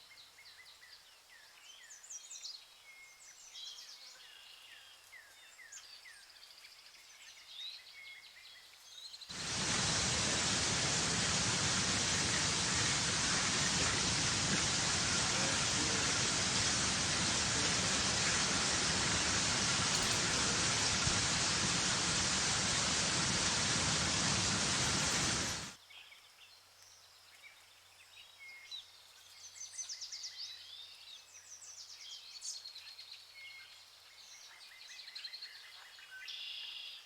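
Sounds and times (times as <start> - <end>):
heavy rain hissing: 9.3 - 25.8
small birds chirping: 9.3 - 25.8.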